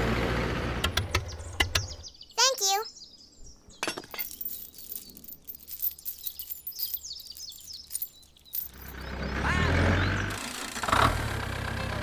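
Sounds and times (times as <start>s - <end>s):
small birds chirping: 1.1s - 10.4s.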